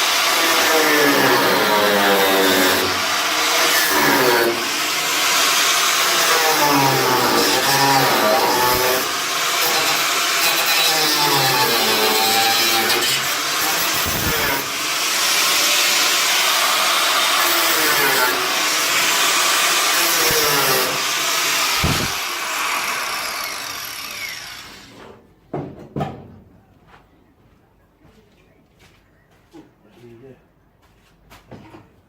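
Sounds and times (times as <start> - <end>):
angle grinder cutting sheet steel: 0.0 - 25.1.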